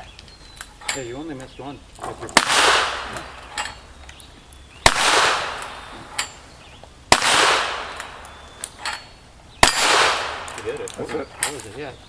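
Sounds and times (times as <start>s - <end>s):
gunshots with long echo: 2.3s - 3.4s, 4.8s - 5.9s, 7.1s - 8.2s, 9.6s - 10.6s.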